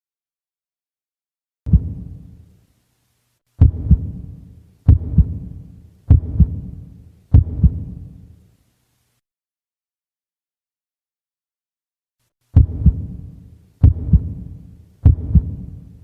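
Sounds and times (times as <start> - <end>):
heartbeat thumps: 1.7 - 2.3, 3.6 - 8.2, 12.6 - 15.9.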